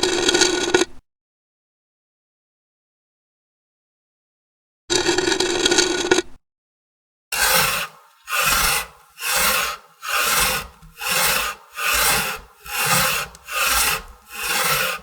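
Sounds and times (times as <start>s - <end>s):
rasping scrapes on wood: 7.4s - 15.0s.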